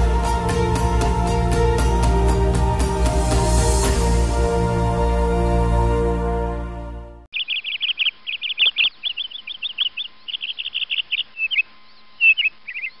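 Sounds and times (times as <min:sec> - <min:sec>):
background music: 0:00.0 - 0:07.3
songbird singing: 0:07.3 - 0:13.0.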